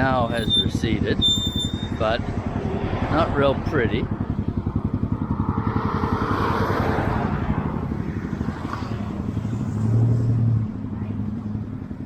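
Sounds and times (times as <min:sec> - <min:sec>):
small engine puttering: 0:00.0 - 0:02.2.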